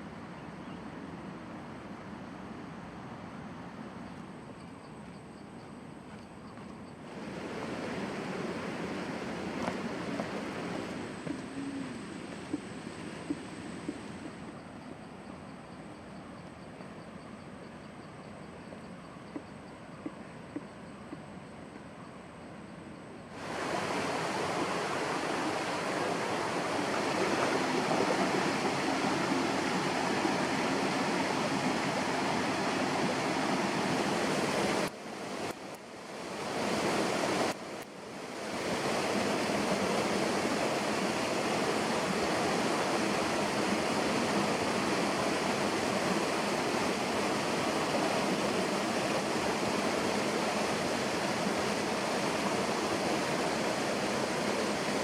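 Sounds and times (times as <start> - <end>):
water rushing: 7.0 - 14.6, 23.3 - 55.0.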